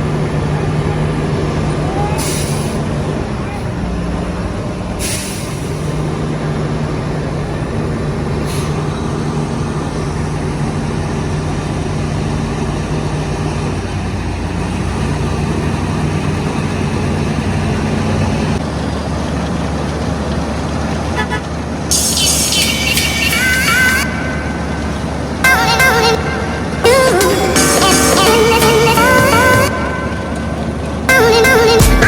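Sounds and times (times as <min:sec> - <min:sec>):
heavy diesel engine running: 0:00.0 - 0:32.0
hiss of air: 0:05.0 - 0:06.0.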